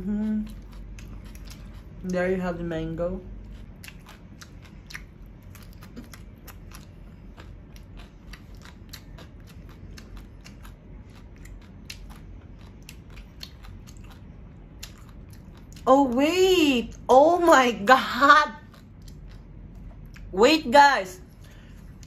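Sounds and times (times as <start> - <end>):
crunchy chewing: 0.0 - 2.1, 3.3 - 15.9, 18.6 - 20.3.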